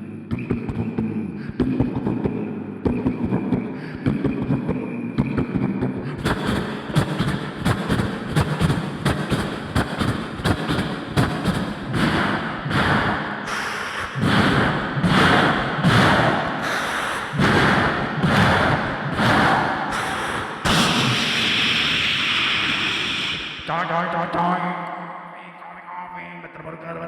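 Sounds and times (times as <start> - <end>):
beatbox clicks and thumps: 2.9 - 22.8
breathy rushing vocal sounds: 12.7 - 23.7.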